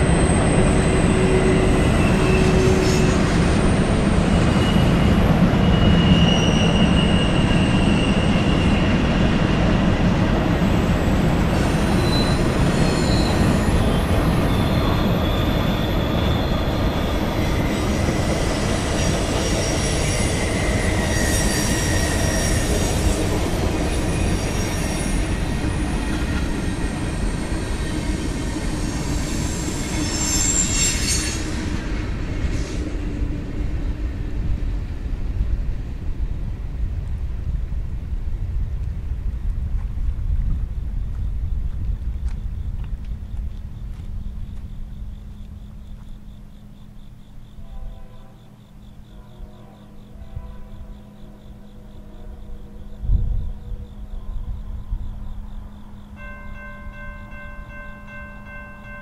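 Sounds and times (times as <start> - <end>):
wheels squealing: 0.0 - 32.8
freight train wheels rumbling: 0.0 - 59.0.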